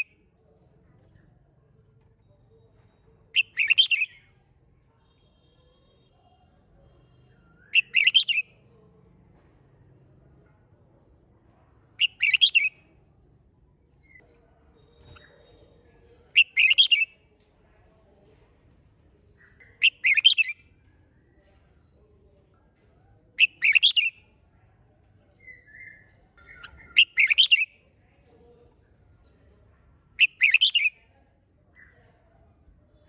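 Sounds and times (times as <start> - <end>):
bird warbling song: 3.3 - 4.2, 16.3 - 17.1, 19.2 - 20.6, 25.4 - 27.8, 30.2 - 31.0.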